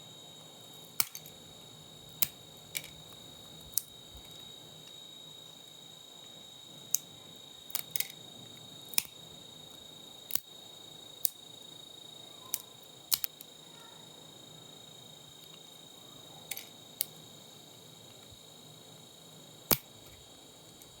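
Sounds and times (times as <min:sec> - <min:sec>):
faint high-pitched whine: 0:00.0 - 0:21.0
clicks and snaps of parts handled: 0:01.0 - 0:01.4, 0:02.2 - 0:04.4, 0:07.7 - 0:08.2, 0:08.9 - 0:09.2, 0:10.3 - 0:10.5, 0:11.2 - 0:11.4, 0:12.5 - 0:13.5, 0:16.5 - 0:17.2, 0:19.7 - 0:20.2.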